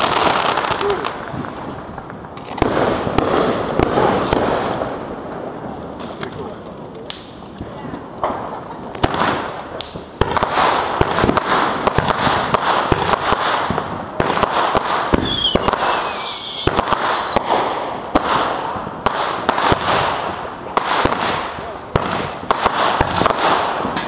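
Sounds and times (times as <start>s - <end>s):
firework crackling: 0.0s - 24.0s
firework cracks and bangs: 0.0s - 24.0s
falling firework whistles: 15.1s - 17.5s.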